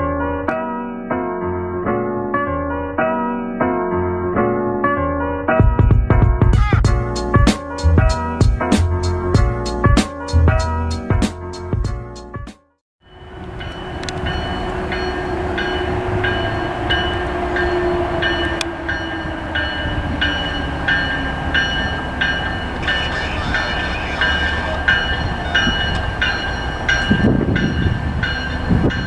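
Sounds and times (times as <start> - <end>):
train rumbling past: 13.1 - 29.0
warning bell ringing: 13.1 - 29.0.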